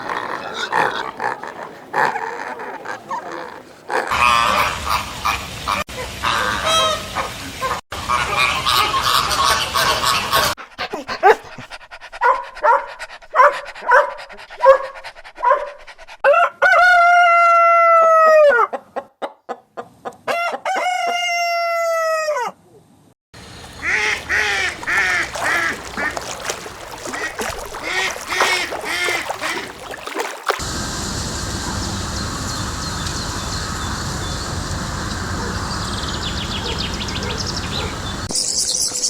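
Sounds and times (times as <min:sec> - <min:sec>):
chickens clucking: 0:00.0 - 0:04.4, 0:23.4 - 0:30.6
flock of fowl calling: 0:00.0 - 0:07.0, 0:23.5 - 0:30.6.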